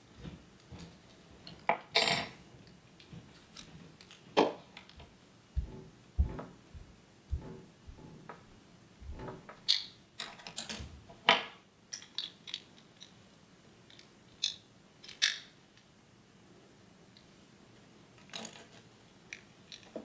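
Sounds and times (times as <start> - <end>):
hand tools clicking and rattling: 11.9 - 13.2.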